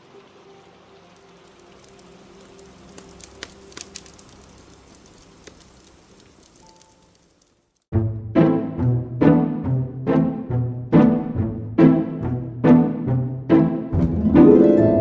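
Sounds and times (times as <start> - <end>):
steady rain: 0.0 - 7.9
fire crackling and popping: 1.2 - 7.9.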